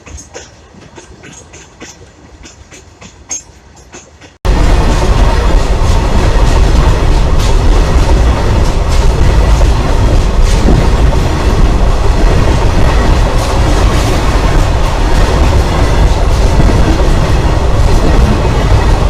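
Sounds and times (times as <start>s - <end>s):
wheels clicking over rail joints: 0.0s - 4.4s
train wheels rumbling on rails: 0.0s - 19.0s.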